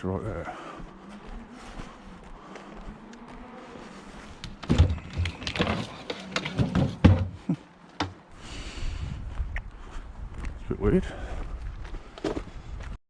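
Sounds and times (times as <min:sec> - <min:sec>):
knocks and thuds from fridge: 0:04.6 - 0:07.4.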